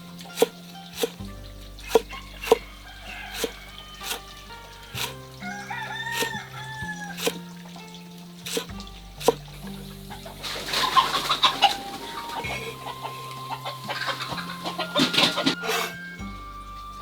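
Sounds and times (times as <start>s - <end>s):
background music with low notes: 0.0s - 17.0s
rooster crowing: 2.0s - 7.5s, 10.2s - 16.1s.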